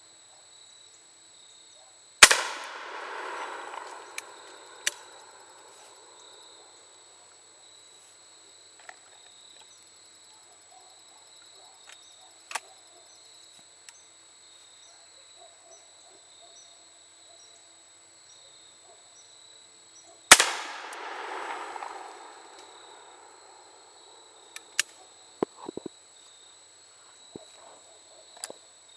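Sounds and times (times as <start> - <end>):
rumbling echo: 2.2 - 6.2, 20.4 - 24.3
shotgun firing: 2.2 - 6.2, 20.3 - 24.3
faint clicks: 2.5 - 6.0
high insect-like tone: 2.9 - 6.8.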